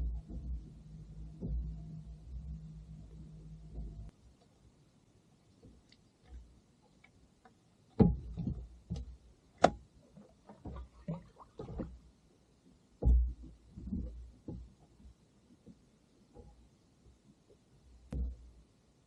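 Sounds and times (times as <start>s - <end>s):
hard gear knocking and thumping: 0.0s - 4.1s.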